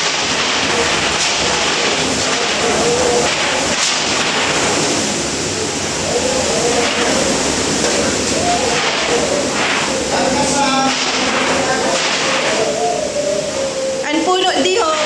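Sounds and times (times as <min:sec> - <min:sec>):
heavy rain: 0:00.0 - 0:15.0
faint voices: 0:05.5 - 0:15.0.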